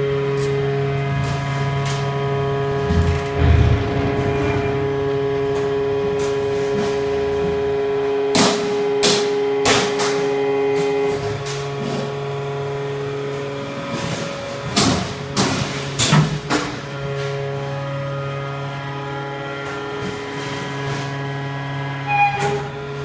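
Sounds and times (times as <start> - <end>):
hydraulic pump hum: 0.0 - 9.6
metal clanks and crashes: 1.2 - 10.3.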